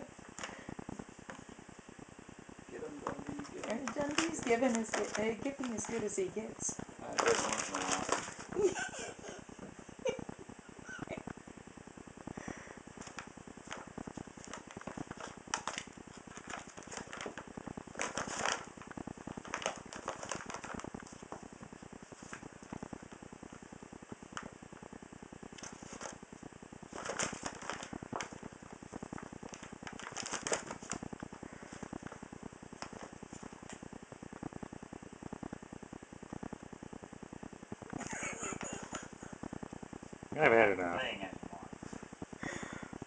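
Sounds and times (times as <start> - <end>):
paper bag crinkling: 3.0 - 6.2, 7.1 - 9.4, 13.0 - 21.3, 25.6 - 26.2, 26.9 - 28.5, 29.2 - 32.2.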